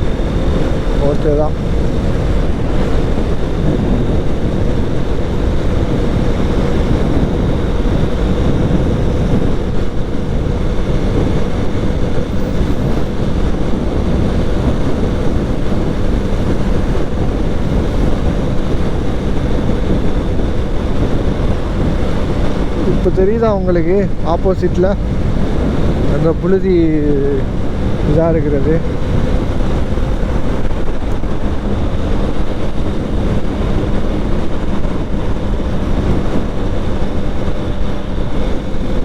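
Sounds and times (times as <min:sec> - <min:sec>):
motorcycle running: 0:00.0 - 0:39.0
wind rush on microphone: 0:00.0 - 0:39.0.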